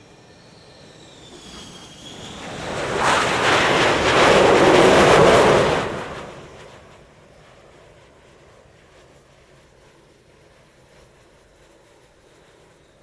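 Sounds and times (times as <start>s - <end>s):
jet aircraft passing: 0.0s - 9.9s.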